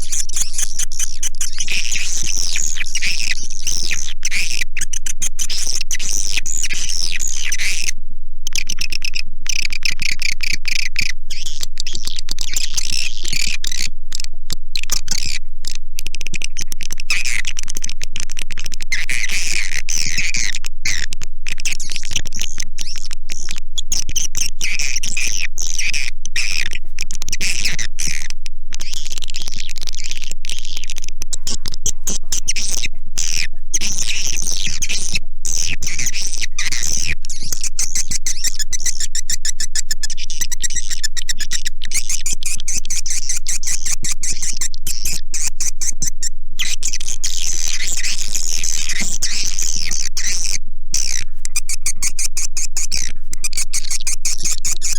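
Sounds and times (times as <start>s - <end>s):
swiftlets chirping and twittering: 0.0s - 7.9s, 28.8s - 54.9s.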